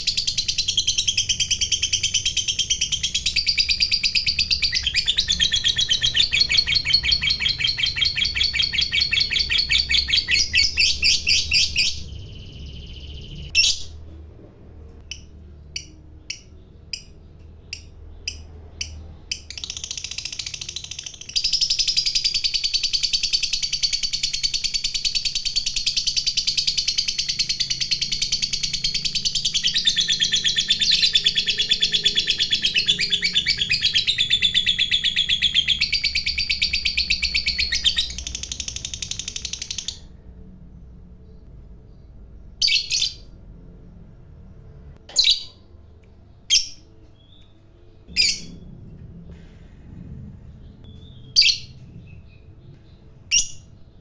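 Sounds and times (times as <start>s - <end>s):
sharp bird chirps: 0.0s - 14.1s, 15.1s - 43.4s.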